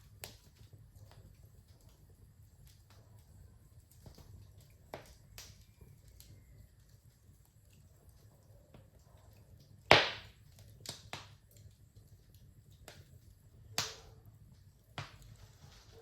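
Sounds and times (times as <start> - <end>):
sharp pops of burning wood: 0.0 - 3.0, 3.9 - 6.5, 9.6 - 16.0
low rumble of burning fire: 0.0 - 16.0
wood fire crackling: 0.0 - 16.0.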